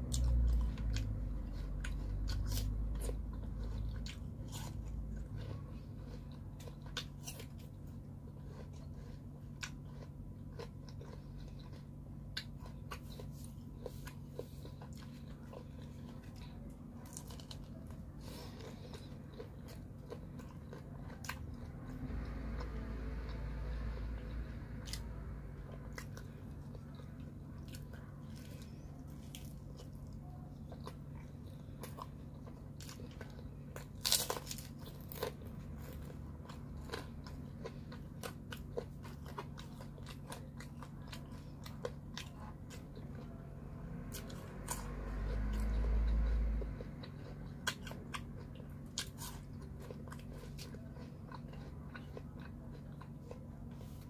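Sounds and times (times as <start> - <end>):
crunchy chewing: 0.0 - 54.0
steady low hum: 0.0 - 54.0
low rumble: 12.6 - 48.8.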